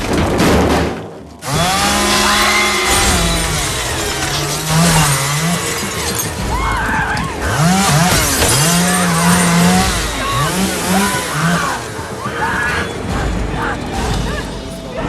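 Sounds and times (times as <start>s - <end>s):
chainsaw engine revving: 1.4s - 12.2s.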